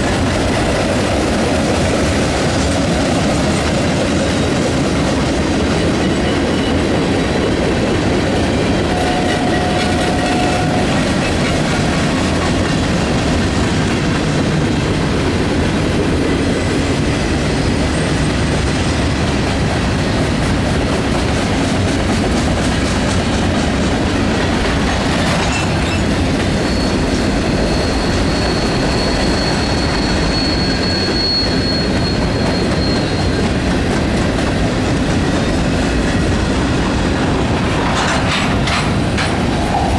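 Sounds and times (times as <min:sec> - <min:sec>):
train wheels rumbling on rails: 0:00.0 - 0:39.9
high-pitched wheel squeal: 0:08.9 - 0:12.2, 0:25.4 - 0:33.7.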